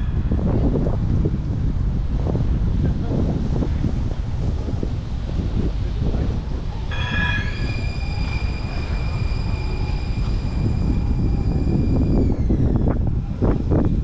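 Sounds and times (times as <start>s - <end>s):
wind on microphone: 0.0s - 14.0s
high-pitched metallic squeal: 6.9s - 12.9s.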